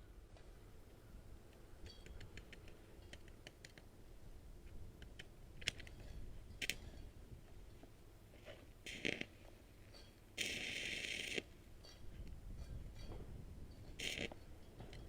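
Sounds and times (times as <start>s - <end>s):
light sharp clicks and taps: 0.3s - 3.9s.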